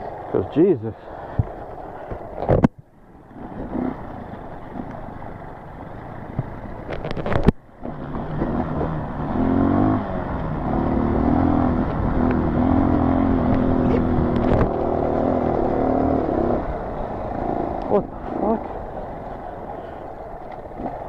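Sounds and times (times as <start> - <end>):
dirt bike engine running: 3.0 - 21.0.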